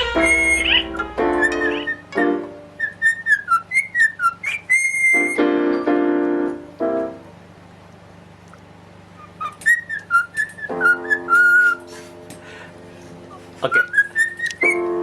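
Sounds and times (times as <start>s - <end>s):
longer lower calls: 0.0s - 2.2s
whistling short notes: 0.0s - 2.2s, 2.8s - 5.5s, 13.7s - 14.8s.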